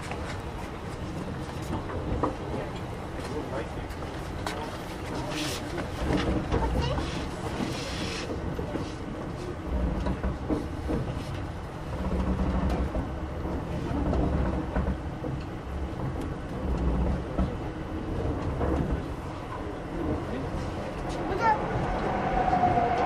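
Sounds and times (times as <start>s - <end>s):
train rumble on rails: 0.0s - 23.0s.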